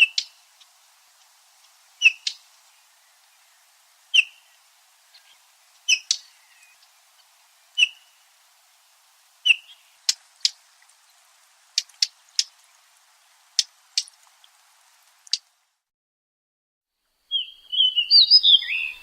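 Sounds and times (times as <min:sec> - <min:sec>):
bird clicking calls: 0:00.0 - 0:02.5, 0:04.1 - 0:04.5, 0:05.1 - 0:08.2, 0:09.4 - 0:11.0, 0:11.7 - 0:12.7, 0:13.5 - 0:14.6, 0:15.2 - 0:15.5
bird whistled note: 0:17.3 - 0:19.0.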